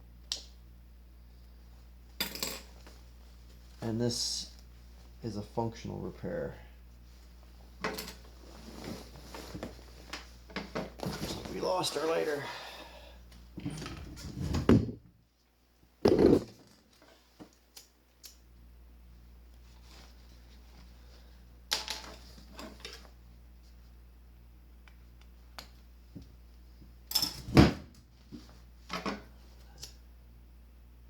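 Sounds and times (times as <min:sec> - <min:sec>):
tools handled on workbench: 0:16.0 - 0:16.6.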